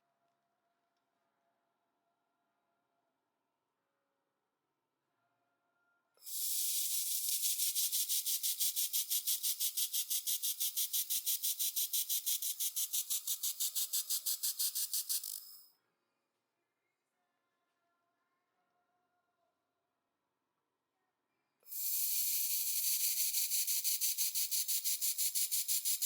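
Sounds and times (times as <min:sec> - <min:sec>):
laser welder pulsing hiss: 0:06.2 - 0:15.6, 0:21.7 - 0:26.0.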